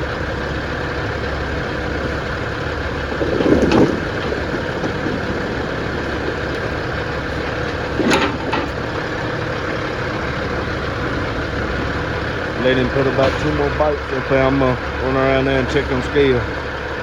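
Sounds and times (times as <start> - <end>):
heavy engine running: 0.0 - 17.0
loud knocks of logs: 0.1 - 14.5.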